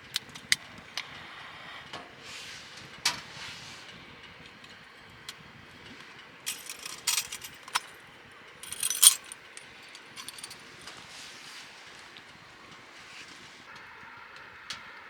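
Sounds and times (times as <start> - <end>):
light clinking and rattling: 6.5 - 8.0, 8.6 - 10.6.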